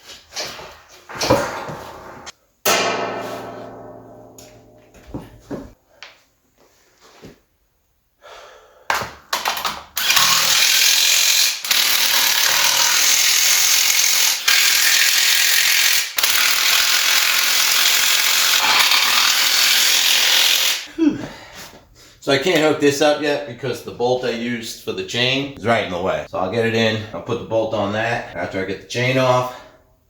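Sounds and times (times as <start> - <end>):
handling knocks: 1.1 - 5.8
loud power tool running: 10.0 - 20.9.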